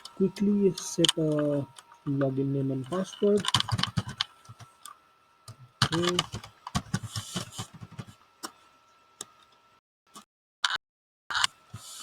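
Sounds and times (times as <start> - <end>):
computer keyboard typing: 2.8 - 4.7, 5.8 - 8.1.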